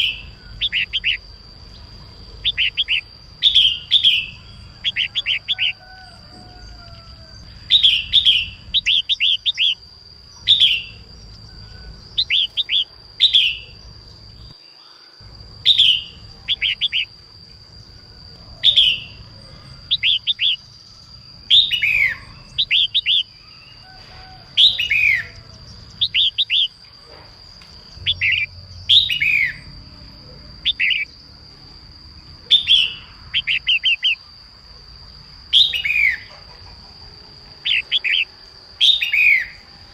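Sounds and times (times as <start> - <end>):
bird singing chirpy notes: 0.0 - 5.8, 7.0 - 17.2, 18.5 - 23.8, 28.0 - 31.2.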